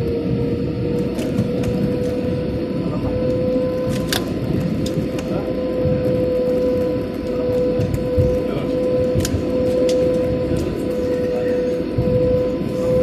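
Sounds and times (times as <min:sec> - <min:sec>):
airliner engine rumble: 0:00.0 - 0:13.0
engine whine: 0:00.0 - 0:13.0.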